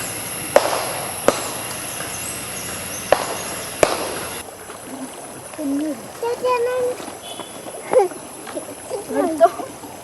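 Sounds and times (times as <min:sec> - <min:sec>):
high thin whine: 0:00.0 - 0:04.4
steady hiss: 0:00.0 - 0:10.0.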